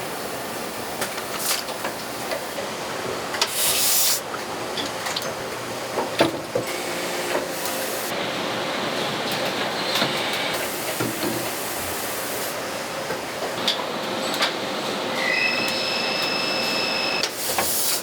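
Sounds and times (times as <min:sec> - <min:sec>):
factory machinery running: 0:06.6 - 0:18.0.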